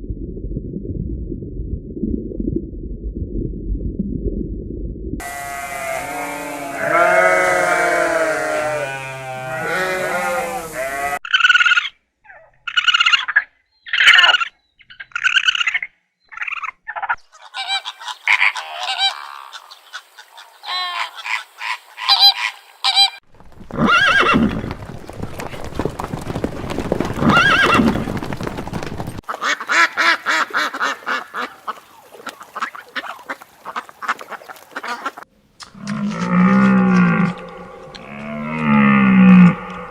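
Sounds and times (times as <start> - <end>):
pitched animal call: 5.2 - 13.3
rattling and clicking animal calls: 16.4 - 39.9.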